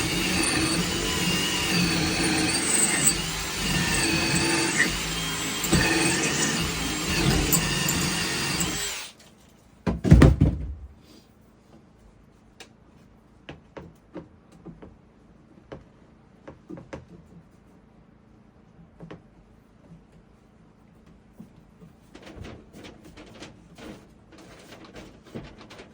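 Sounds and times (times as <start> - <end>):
power drill running: 0.0 - 9.1.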